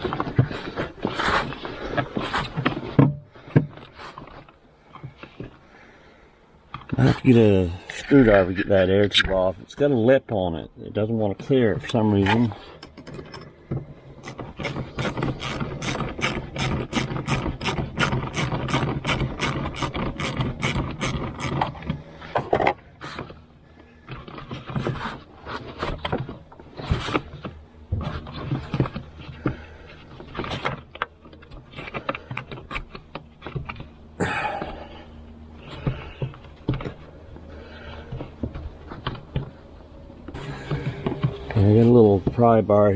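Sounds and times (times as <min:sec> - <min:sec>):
sharp clicks of hand tools: 0:14.2 - 0:21.7.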